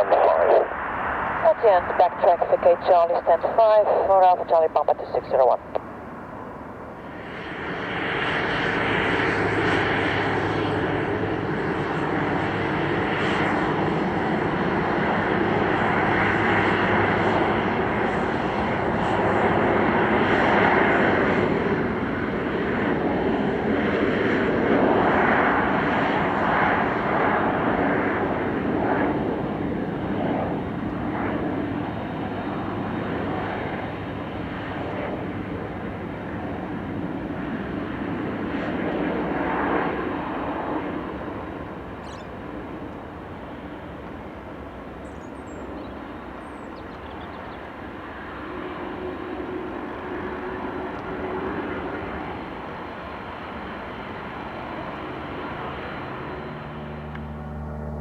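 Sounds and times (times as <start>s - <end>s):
jet engines taxiing: 0.0s - 58.0s.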